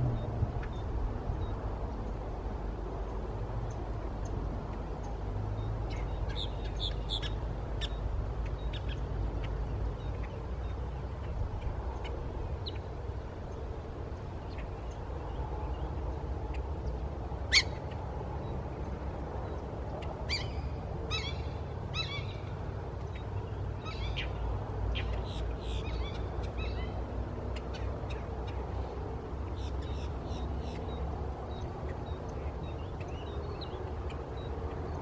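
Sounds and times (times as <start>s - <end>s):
low background rumble: 0.0s - 3.6s.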